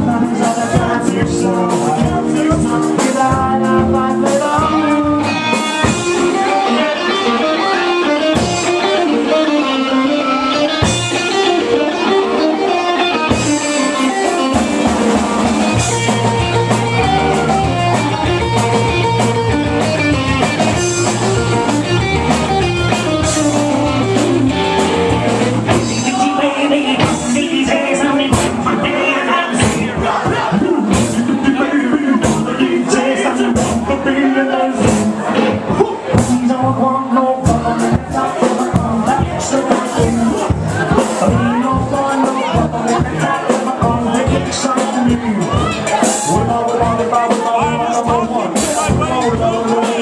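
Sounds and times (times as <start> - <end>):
electric guitar: 0.0 - 50.0
live band playing: 0.0 - 50.0
low bass part: 14.6 - 26.3.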